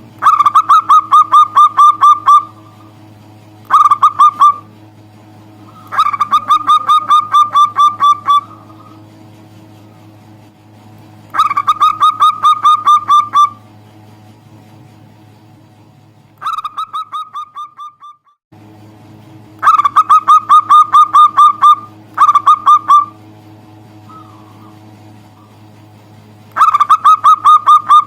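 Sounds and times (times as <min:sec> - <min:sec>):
low hum: 0:00.0 - 0:28.0
dove cooing: 0:00.2 - 0:02.9, 0:03.7 - 0:04.7, 0:05.6 - 0:09.1, 0:11.3 - 0:13.6, 0:19.6 - 0:23.2, 0:24.1 - 0:25.6, 0:26.6 - 0:28.0.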